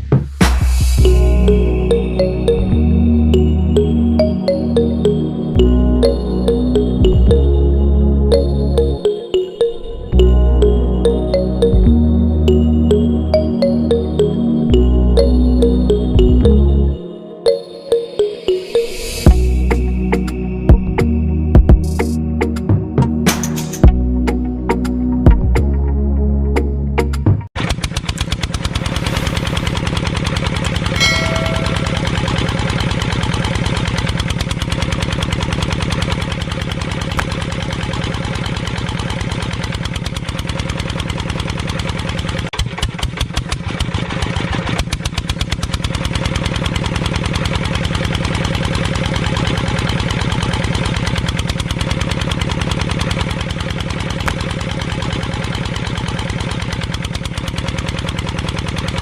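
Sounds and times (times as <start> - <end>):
small engine running: 27.6 - 59.0.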